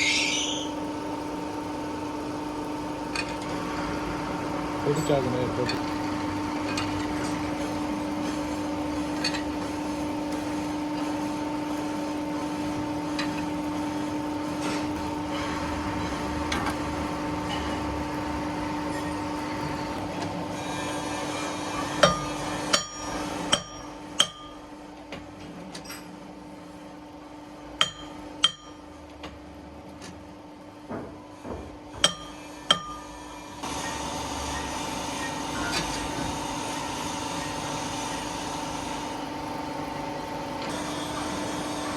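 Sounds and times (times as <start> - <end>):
workshop machinery humming: 0.0 - 41.9
hammer striking steel: 22.0 - 24.6, 27.8 - 28.8, 32.0 - 33.1.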